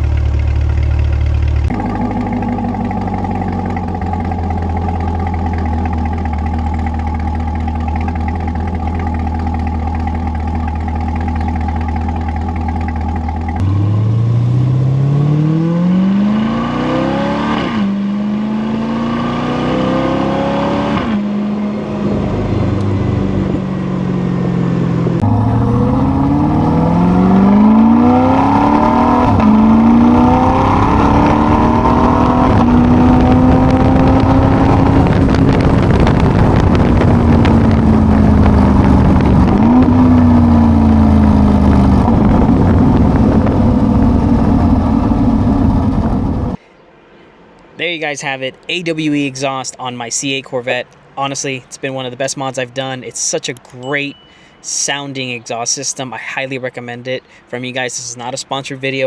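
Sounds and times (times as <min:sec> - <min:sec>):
car engine accelerating: 0:00.0 - 0:46.6
low engine note: 0:00.0 - 0:56.6.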